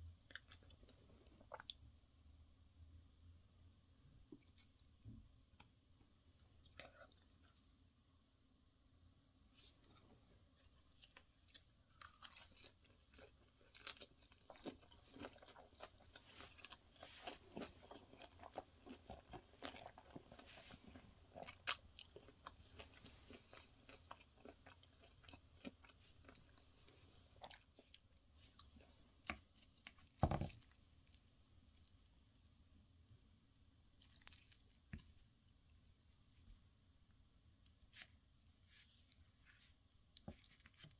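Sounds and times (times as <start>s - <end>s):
chewing and crunching: 0.1s - 1.8s, 9.6s - 32.5s, 34.0s - 36.4s, 37.6s - 40.9s.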